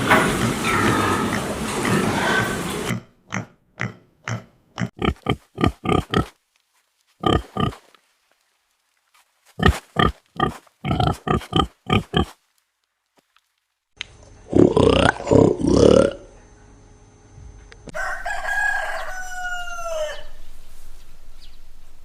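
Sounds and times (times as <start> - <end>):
pig grunting: 0.1 - 6.3, 7.2 - 7.8, 9.6 - 12.4, 14.5 - 16.3.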